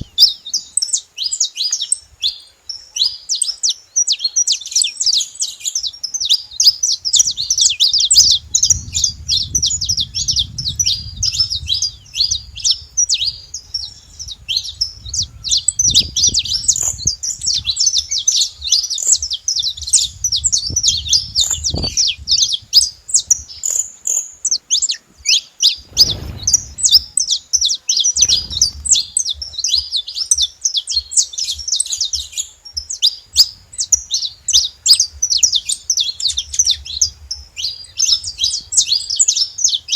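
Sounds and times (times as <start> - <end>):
finches chirping: 0.0 - 39.9
low thumps and rumbles: 7.0 - 22.8, 25.8 - 27.2, 28.2 - 29.6.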